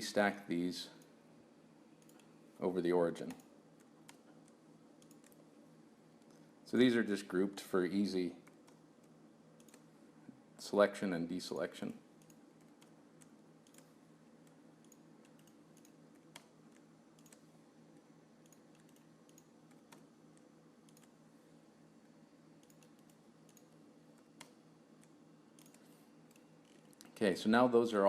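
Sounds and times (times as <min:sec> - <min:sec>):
low steady hum: 0:00.0 - 0:28.0
computer mouse clicks: 0:02.0 - 0:02.3, 0:03.2 - 0:05.4, 0:08.4 - 0:09.9, 0:12.2 - 0:17.5, 0:18.4 - 0:21.2, 0:22.6 - 0:27.1.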